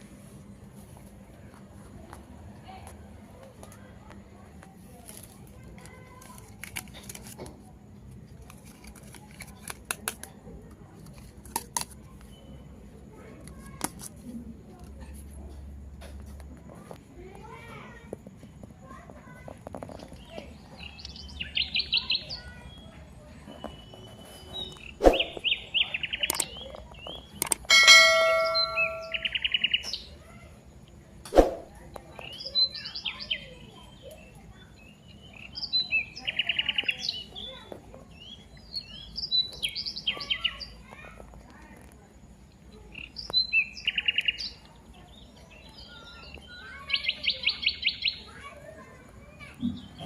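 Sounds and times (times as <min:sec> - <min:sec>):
birds chirping: 0:20.0 - 0:30.3, 0:31.4 - 0:41.2, 0:42.7 - 0:50.0
metal object struck ringing: 0:27.7 - 0:29.4.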